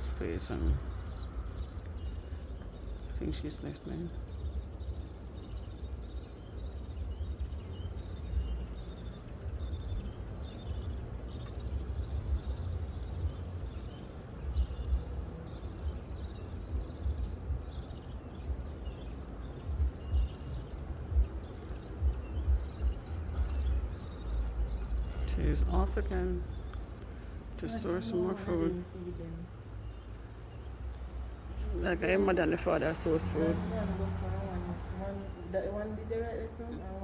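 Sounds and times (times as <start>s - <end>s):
high-pitched insect trill: 0.0s - 37.0s
wind rumble on microphone: 7.0s - 26.9s.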